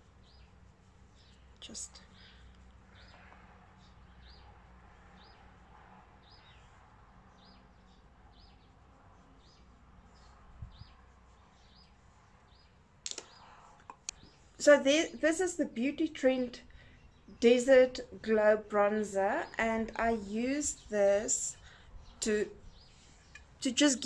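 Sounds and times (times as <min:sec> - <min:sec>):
sharp clicks: 0:13.0 - 0:14.3.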